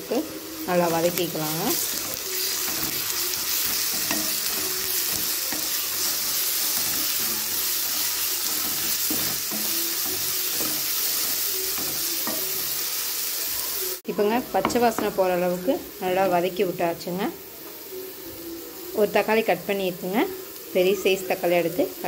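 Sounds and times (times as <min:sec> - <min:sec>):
onions sizzling in hot oil: 0:00.0 - 0:22.0
spatula scraping pan: 0:00.8 - 0:12.8.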